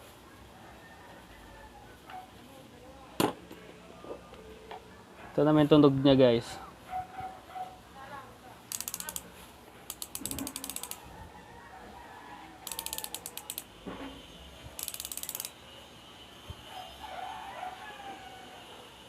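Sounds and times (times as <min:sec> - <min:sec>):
bicycle hub ratchet clicking: 0:08.7 - 0:11.0, 0:12.6 - 0:13.7, 0:14.8 - 0:15.6.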